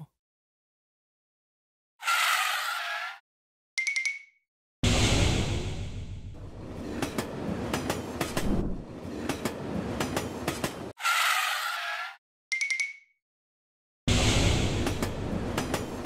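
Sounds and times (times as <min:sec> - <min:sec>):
train rumble: 0:05.6 - 0:10.9, 0:14.1 - 0:16.0.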